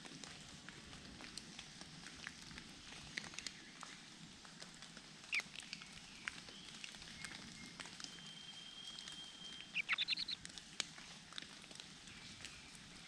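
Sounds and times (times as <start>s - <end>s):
thin steady bird whistle: 5.8s - 10.4s
loud high bird chirps: 8.1s - 10.4s.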